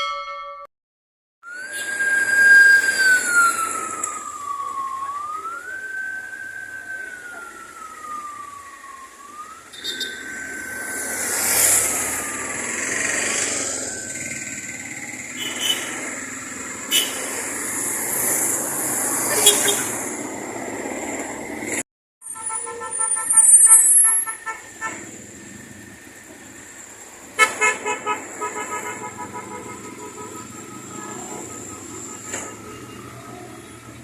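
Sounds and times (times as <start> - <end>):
siren wailing: 1.4 - 15.4, 29.8 - 34.0.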